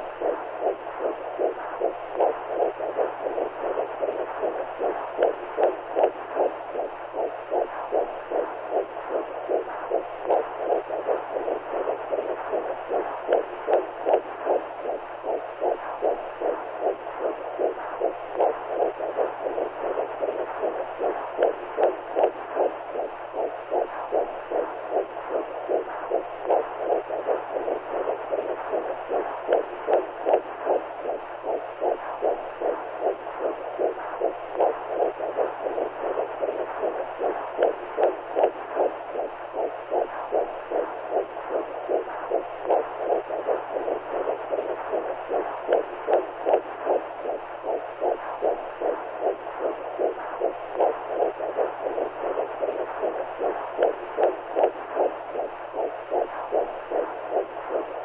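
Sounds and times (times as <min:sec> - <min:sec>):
faint low hum: 0:00.0 - 0:58.0
whooshing heartbeat pulse: 0:00.0 - 0:58.0.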